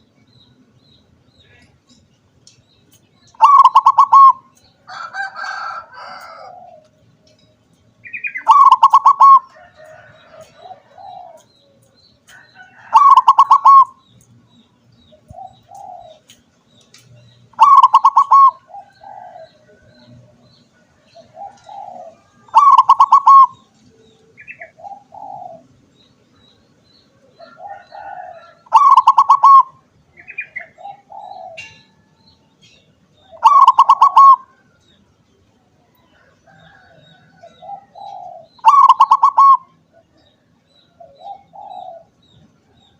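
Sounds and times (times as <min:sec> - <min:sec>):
dove rolled cooing: 0:03.4 - 0:04.4, 0:05.0 - 0:07.0, 0:08.3 - 0:11.5, 0:12.8 - 0:14.0, 0:17.6 - 0:20.4, 0:21.2 - 0:25.7, 0:27.4 - 0:31.6, 0:33.3 - 0:34.5, 0:36.5 - 0:39.7, 0:41.0 - 0:42.1
soft low dove coos: 0:08.4 - 0:11.6.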